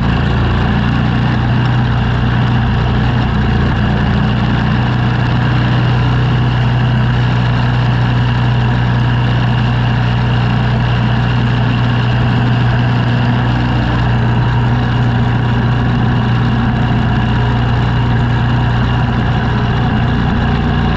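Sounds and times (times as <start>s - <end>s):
engine running steadily: 0.0s - 20.9s.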